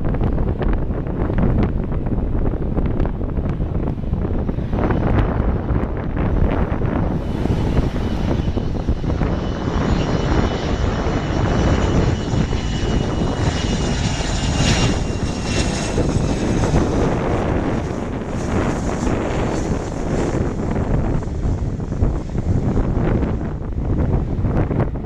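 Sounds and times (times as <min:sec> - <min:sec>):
wind rumble on microphone: 0:00.0 - 0:25.0
jet engine turbine whine: 0:00.2 - 0:25.0.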